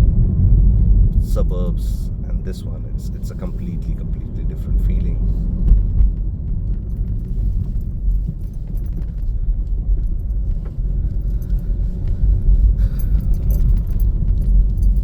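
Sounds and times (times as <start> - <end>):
car road noise from inside: 0.0 - 15.0
faint light rattles: 3.3 - 15.0.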